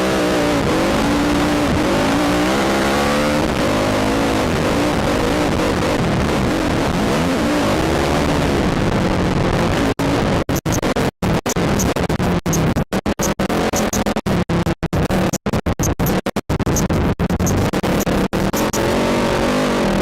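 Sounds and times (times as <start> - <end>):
atv engine revving: 0.0 - 14.2, 17.4 - 20.0
clicks: 10.5 - 14.2, 15.3 - 18.8.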